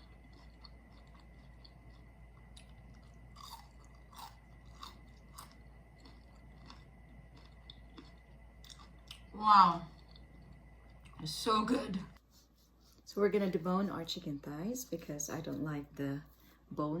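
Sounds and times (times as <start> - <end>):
chewing crispy fried chicken: 0.0 - 11.2.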